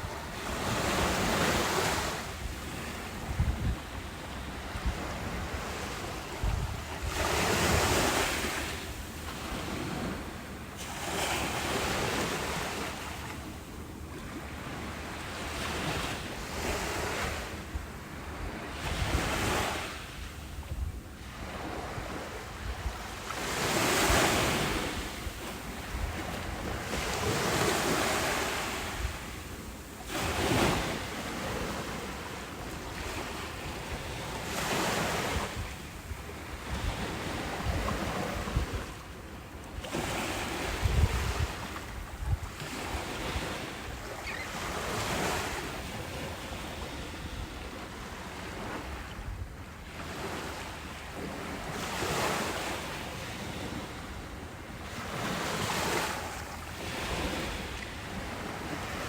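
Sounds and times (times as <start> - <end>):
wind buffeting microphone: 0.0 - 10.3, 33.0 - 39.1, 39.8 - 45.8
ocean waves breaking: 0.0 - 20.6, 21.2 - 59.0.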